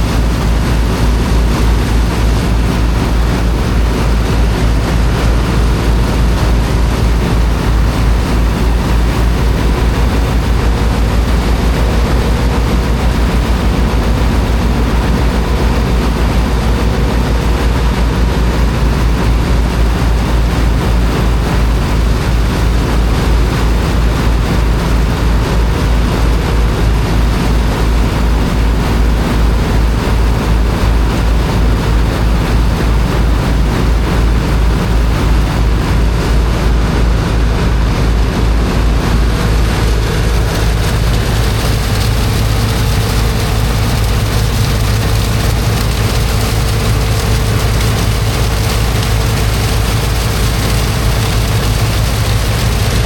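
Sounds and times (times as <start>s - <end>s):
water pump engine throbbing: 0.0s - 53.0s
rushing water hiss: 39.4s - 53.0s.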